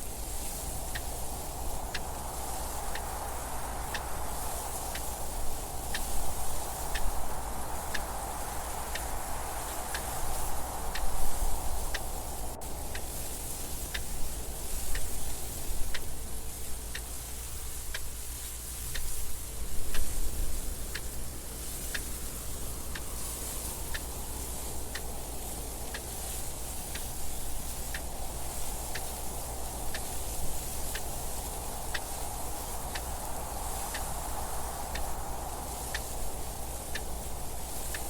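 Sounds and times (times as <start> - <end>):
wind noise: 0.0 - 38.0
clock ticking: 5.9 - 17.2, 19.8 - 38.0.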